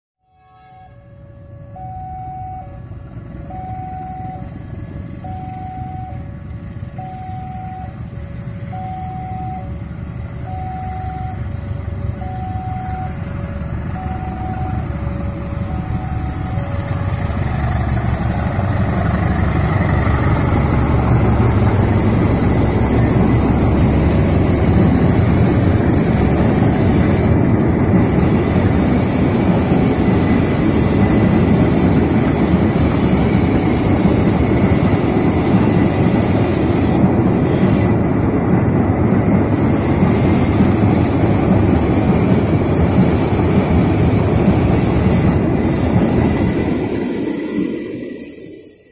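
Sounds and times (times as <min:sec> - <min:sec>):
diesel locomotive running: 0:00.7 - 0:48.9
level crossing alarm chiming: 0:01.8 - 0:02.8, 0:03.5 - 0:04.6, 0:05.2 - 0:06.3, 0:06.9 - 0:09.8, 0:10.4 - 0:16.9
train wheels rolling on rails: 0:09.6 - 0:48.9.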